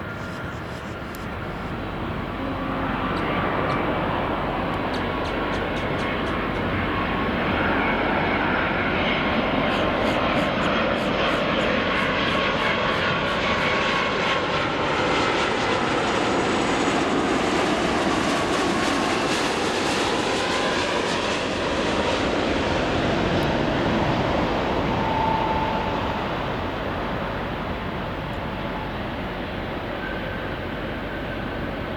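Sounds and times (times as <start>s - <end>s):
jet engines roaring: 0.0s - 31.9s
whining tones sliding in pitch: 23.3s - 29.1s.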